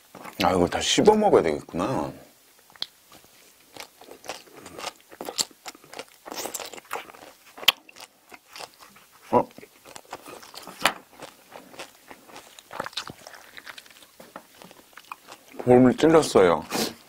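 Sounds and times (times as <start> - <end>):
shrimp shell crunching: 3.7 - 9.0, 9.6 - 15.6.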